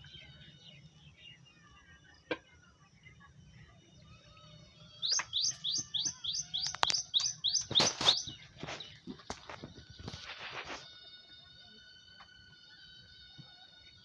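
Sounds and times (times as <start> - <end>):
bird chirping: 3.0 - 9.5.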